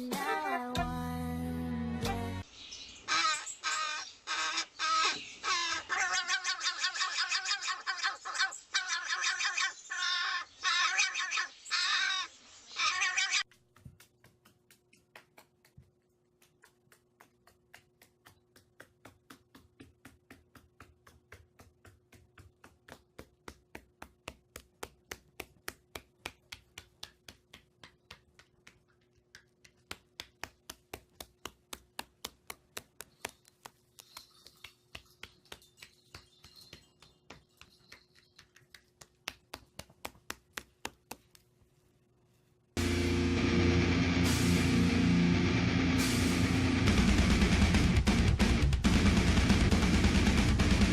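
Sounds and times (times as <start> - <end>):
crow cawing: 3.1 - 13.4
quick sharp taps: 13.5 - 41.6.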